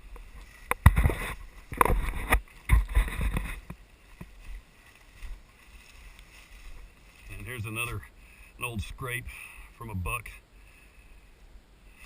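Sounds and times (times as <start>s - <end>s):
footsteps crunching through leaves: 0.4s - 7.9s.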